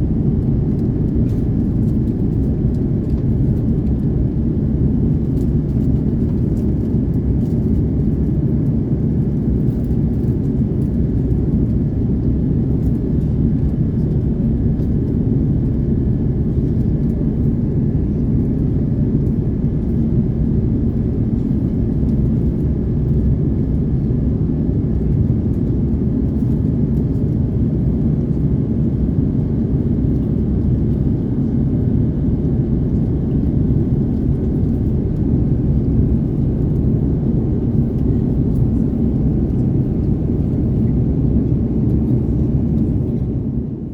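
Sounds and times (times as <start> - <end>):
aircraft cabin low drone: 0.0 - 43.9.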